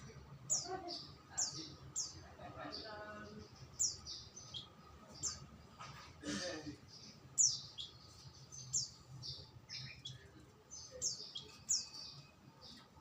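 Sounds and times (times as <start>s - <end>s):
small songbird chirping: 0.0s - 13.0s.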